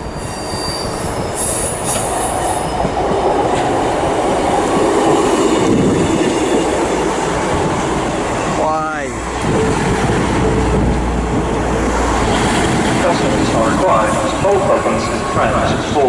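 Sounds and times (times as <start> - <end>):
high wheel squeal: 0.0 - 3.1
train rumbling on rails: 0.0 - 16.0.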